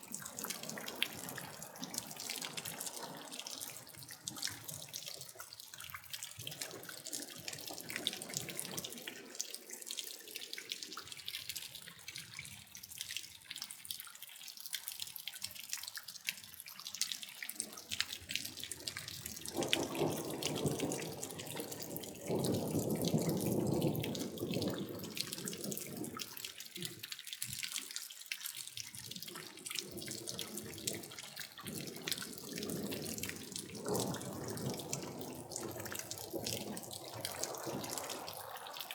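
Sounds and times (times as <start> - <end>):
water dripping and splashing: 0.0 - 38.9
heavier runs of water: 29.0 - 38.9.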